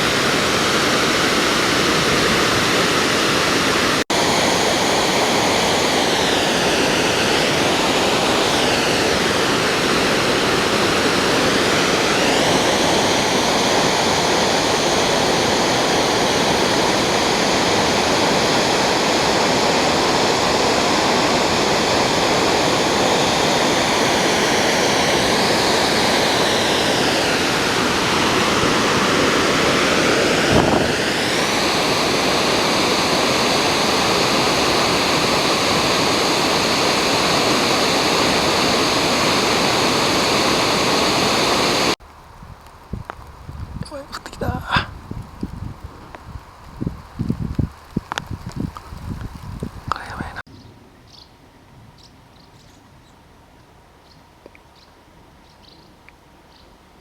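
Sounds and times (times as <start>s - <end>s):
waterfall rushing: 0.0s - 42.0s.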